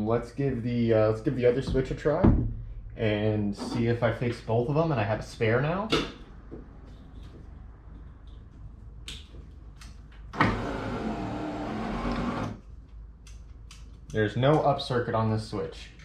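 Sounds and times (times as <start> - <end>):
power window motor whine: 10.4 - 12.6.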